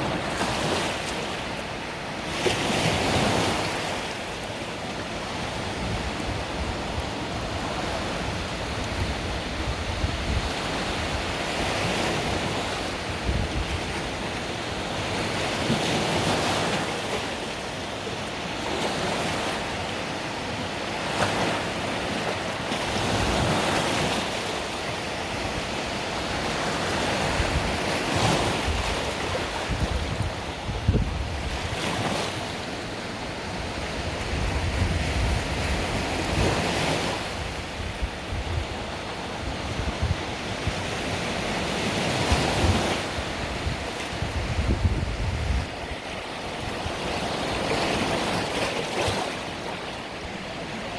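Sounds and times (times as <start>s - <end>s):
sea waves breaking on shore: 0.0s - 50.9s
wind noise on microphone: 5.3s - 16.9s, 25.1s - 32.6s, 33.4s - 49.4s.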